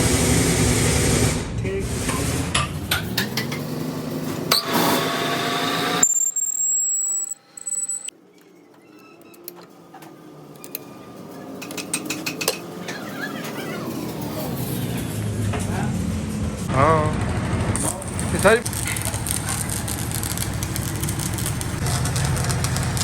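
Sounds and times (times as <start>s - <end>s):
thin high whine: 5.8s - 8.1s
metal tools clinking: 6.0s - 8.1s.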